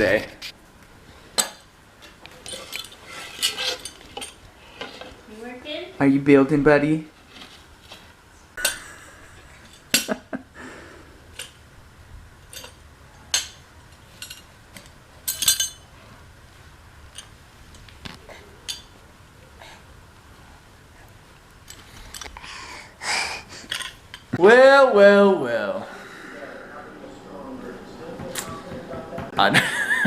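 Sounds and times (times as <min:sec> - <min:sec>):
metal hand tools clinking: 0:02.4 - 0:04.4, 0:12.4 - 0:14.5, 0:15.2 - 0:15.9, 0:18.6 - 0:19.0.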